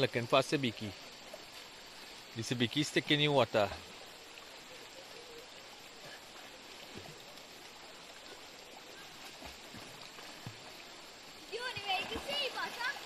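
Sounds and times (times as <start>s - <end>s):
river flowing: 0.0s - 13.0s
small water plops: 4.2s - 13.0s.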